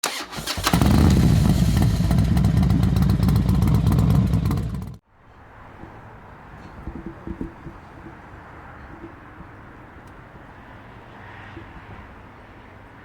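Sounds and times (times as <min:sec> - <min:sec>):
quiet outdoor background: 0:00.0 - 0:13.0
motorcycle engine revving: 0:00.1 - 0:05.0.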